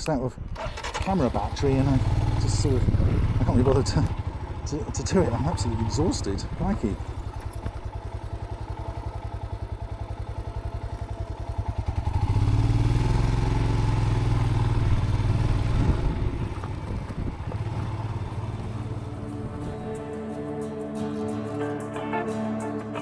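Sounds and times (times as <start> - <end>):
motorcycle engine: 0.4 - 23.0.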